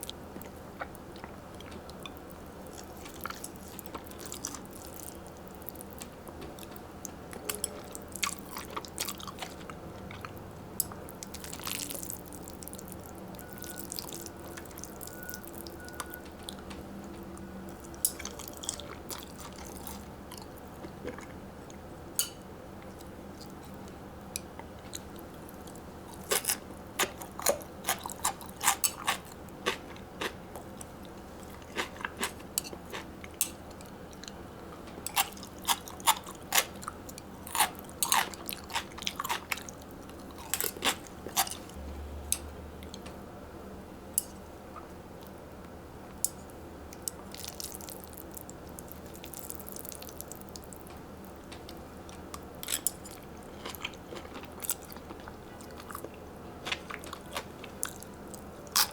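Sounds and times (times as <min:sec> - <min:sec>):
person chewing crunchy food: 0:00.0 - 0:16.8, 0:17.7 - 0:21.4, 0:22.8 - 0:41.8, 0:47.0 - 0:58.9.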